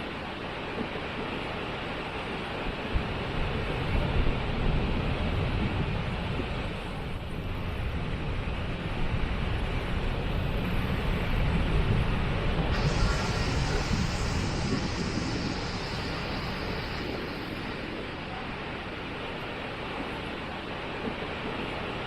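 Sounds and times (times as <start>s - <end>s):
deep uneven rumble: 12.7s - 20.2s
waterfall rushing: 12.8s - 19.8s.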